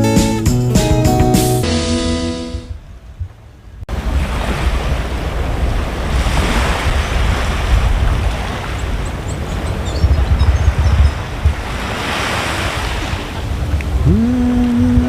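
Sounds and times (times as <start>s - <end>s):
wind buffeting microphone: 2.8s - 15.0s
breaking surf: 3.9s - 9.0s, 11.4s - 15.0s.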